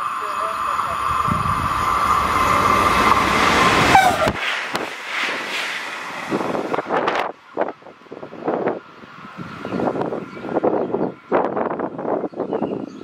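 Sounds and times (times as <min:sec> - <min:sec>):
high falling tone: 0:00.0 - 0:07.9
train rumbling past: 0:00.0 - 0:12.9
wind gusts: 0:00.0 - 0:13.0.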